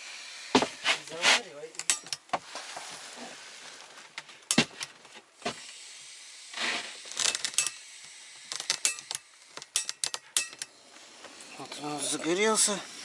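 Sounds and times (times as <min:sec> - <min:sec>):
gas stove burner hissing: 0:05.4 - 0:11.6.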